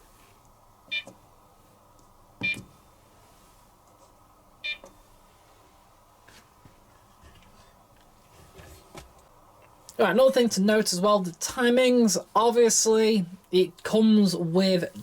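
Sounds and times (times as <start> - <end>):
washing machine key-press beeps: 0.9 - 1.1, 2.4 - 2.7, 4.6 - 4.9.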